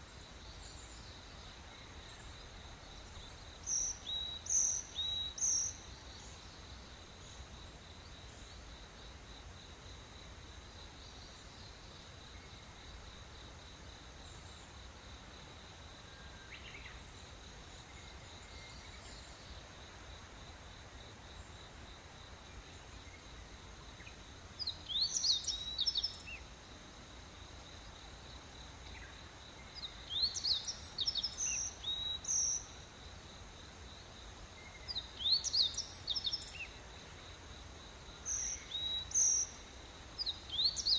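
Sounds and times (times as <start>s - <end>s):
insects buzzing: 0.0s - 40.9s
bird singing: 0.1s - 7.4s, 16.1s - 19.6s, 23.9s - 26.5s, 28.6s - 32.8s, 34.6s - 37.2s, 38.1s - 40.9s.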